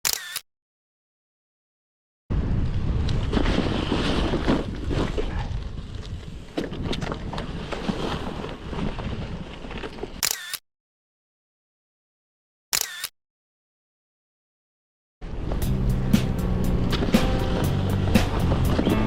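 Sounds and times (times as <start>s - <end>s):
wind rumbling on microphone: 2.3s - 10.2s, 15.2s - 19.0s.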